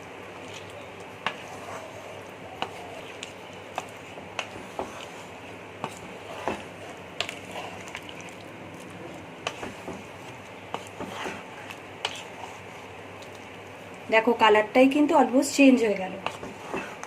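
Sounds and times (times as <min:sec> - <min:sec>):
food sizzling: 0:00.0 - 0:17.0
metal spatula scraping pan: 0:10.7 - 0:12.6.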